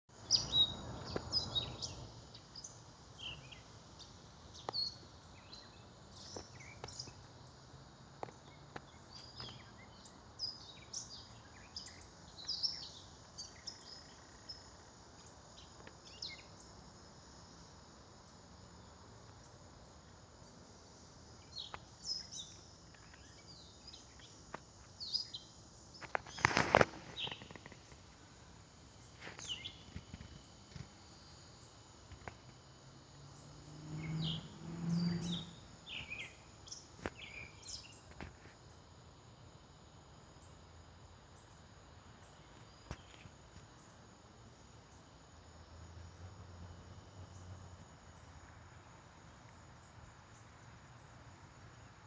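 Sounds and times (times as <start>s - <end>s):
faint outdoor background noise: 0.0s - 52.0s
birds chirping and singing: 34.0s - 38.0s.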